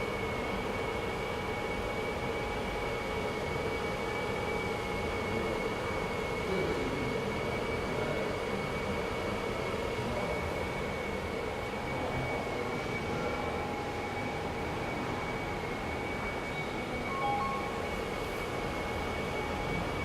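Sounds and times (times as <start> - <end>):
hot-air blowers and fans whooshing: 0.0 - 20.0
thin high whine: 9.4 - 20.0.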